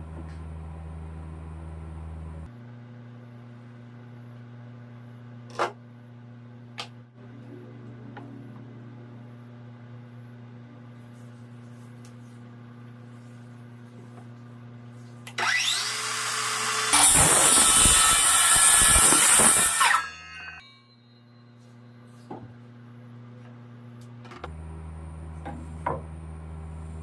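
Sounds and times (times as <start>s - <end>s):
power tool cutting wood: 15.4s - 20.6s.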